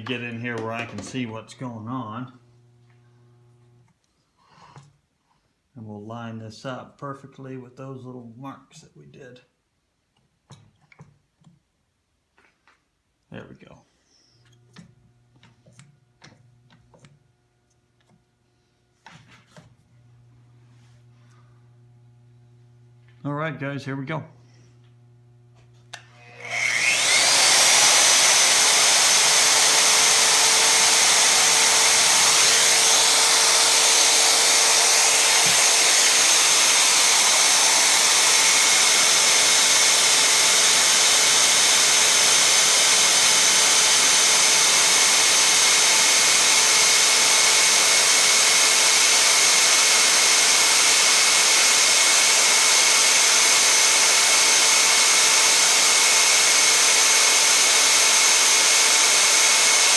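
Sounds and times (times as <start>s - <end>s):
drill press boring through metal: 26.0s - 59.9s.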